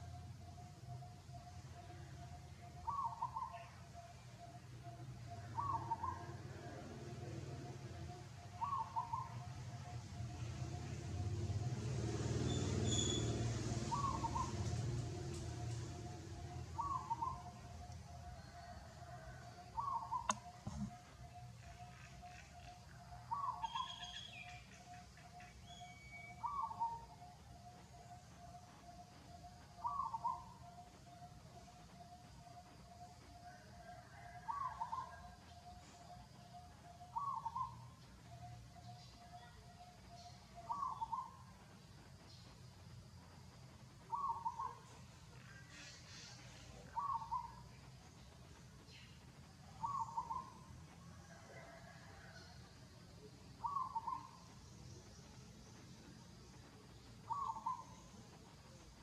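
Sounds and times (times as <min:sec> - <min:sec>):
bird call: 0:16.5 - 0:17.7, 0:18.5 - 0:27.2, 0:57.3 - 0:58.0.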